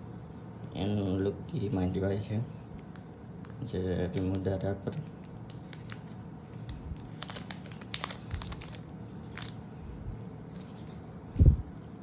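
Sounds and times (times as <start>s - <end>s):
plastic film peeling and tearing: 2.6s - 9.6s
plastic crinkling: 2.6s - 9.7s.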